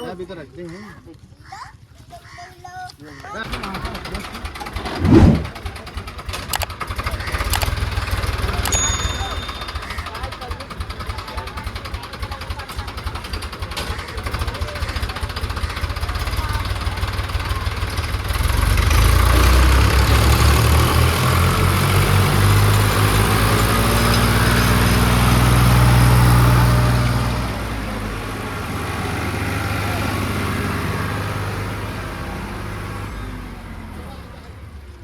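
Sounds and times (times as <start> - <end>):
diesel tractor engine droning: 7.4 - 34.9.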